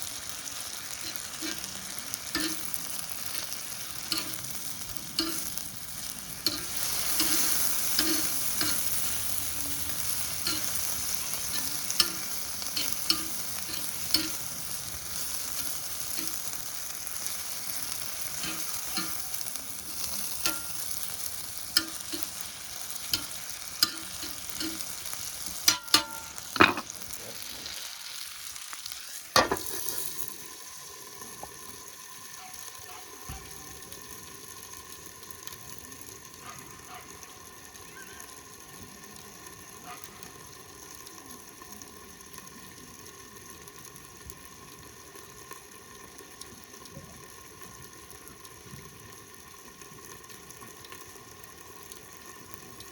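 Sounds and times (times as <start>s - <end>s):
meat and garlic sizzling in pan: 0.0s - 52.9s
utensil clicking and scraping pan: 0.9s - 27.0s, 29.4s - 30.2s.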